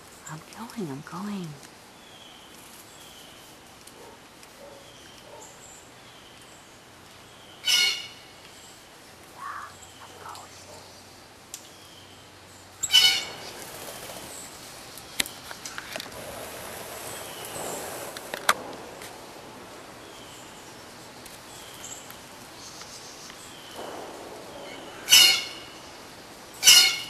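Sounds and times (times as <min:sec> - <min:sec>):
harsh bird call: 0:09.4 - 0:10.6, 0:12.8 - 0:14.3, 0:23.7 - 0:27.0.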